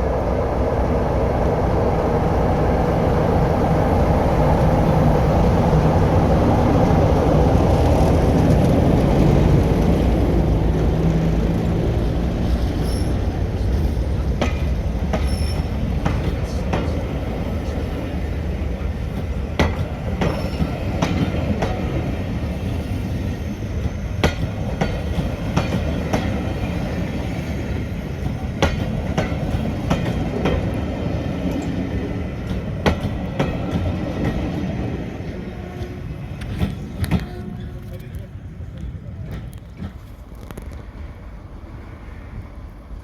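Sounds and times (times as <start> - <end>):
diesel train rumbling: 0.0 - 43.0
wheels clacking over rail joints: 6.8 - 23.1, 23.7 - 41.1.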